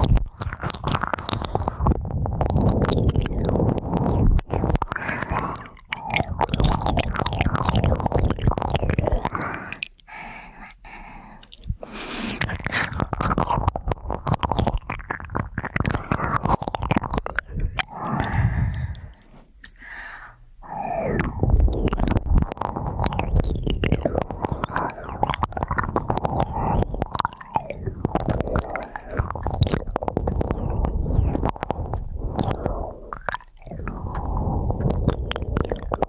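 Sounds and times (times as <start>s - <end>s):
ear pick scratching microphone: 0.0s - 9.4s, 11.6s - 19.6s, 20.9s - 36.0s.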